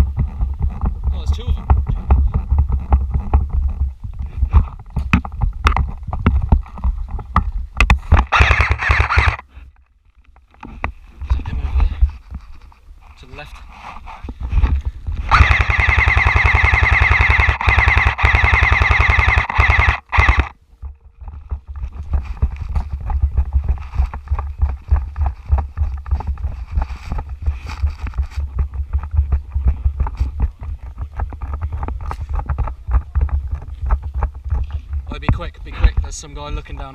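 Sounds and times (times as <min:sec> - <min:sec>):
rustling and knocks: 0:00.0 - 0:08.3, 0:09.7 - 0:12.9, 0:20.8 - 0:36.9
airsoft rifle full-auto burst: 0:08.2 - 0:09.5, 0:15.3 - 0:20.6.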